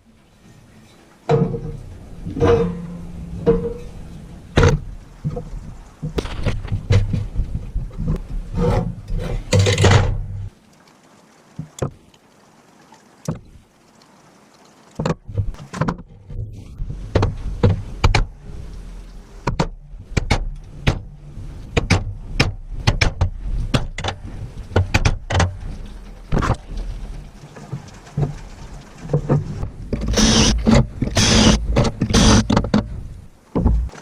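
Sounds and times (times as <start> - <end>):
low rumble: 16.2 - 24.8.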